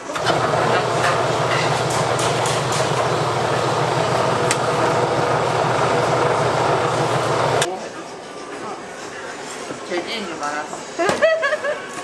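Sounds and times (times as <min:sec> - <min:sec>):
loud mechanical hum: 0:00.0 - 0:07.7.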